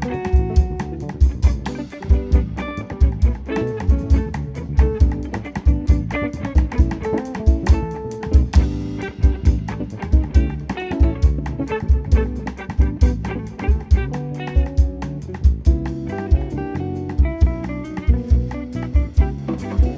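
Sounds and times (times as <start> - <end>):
double bass: 0.0 - 14.1
drum kit: 0.0 - 19.9
jazz guitar: 0.0 - 19.9.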